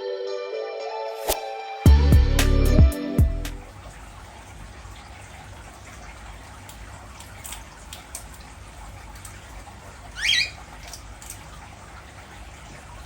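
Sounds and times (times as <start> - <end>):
low steady hum: 1.9 - 13.0
cockatiel chirp: 10.2 - 10.6.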